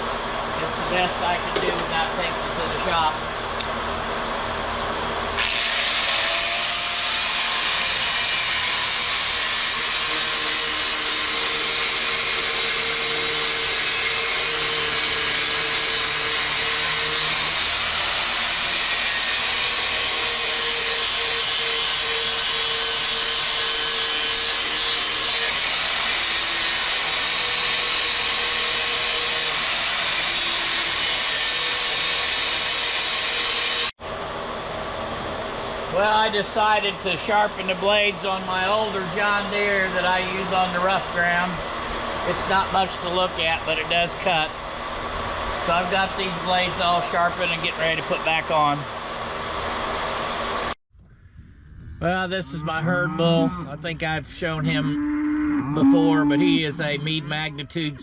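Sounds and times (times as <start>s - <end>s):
power grinder high grinding whine: 5.2s - 33.9s, 55.8s - 56.9s.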